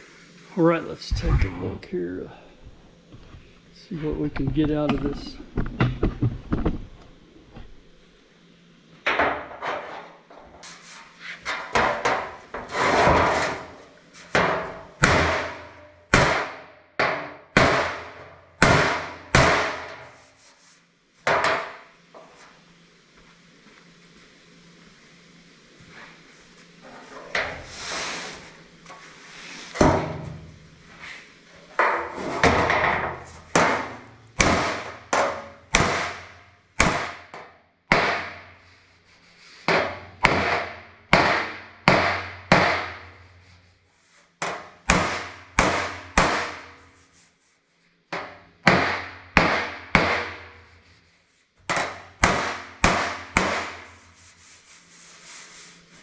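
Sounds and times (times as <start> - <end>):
hammer striking sheet metal: 14.3 - 20.2, 31.8 - 38.5, 39.7 - 43.2, 44.4 - 46.9, 48.2 - 50.7, 51.6 - 54.0.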